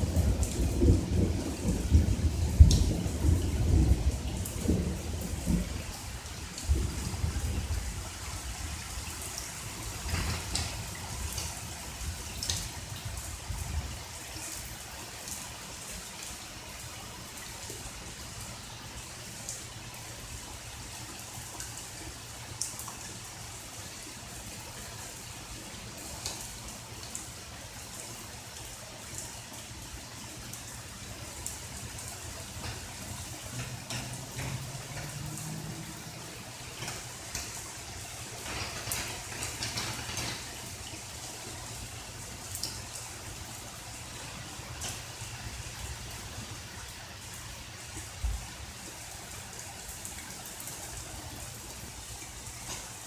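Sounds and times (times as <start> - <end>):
thunder rumbling: 0.0 - 12.4, 31.7 - 41.7
rain falling: 0.0 - 53.0
water drips: 0.0 - 53.0.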